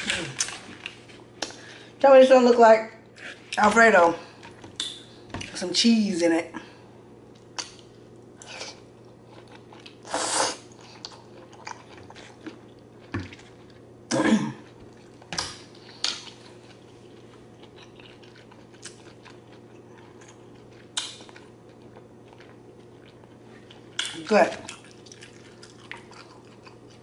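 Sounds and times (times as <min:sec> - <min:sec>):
person slurping: 0:10.0 - 0:10.6
wet chewing: 0:15.8 - 0:27.0.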